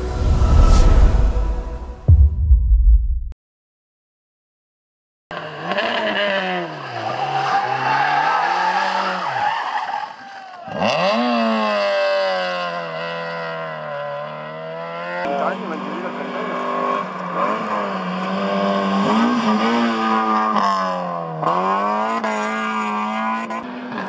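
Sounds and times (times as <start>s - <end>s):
race car engine at full throttle: 5.3s - 24.0s.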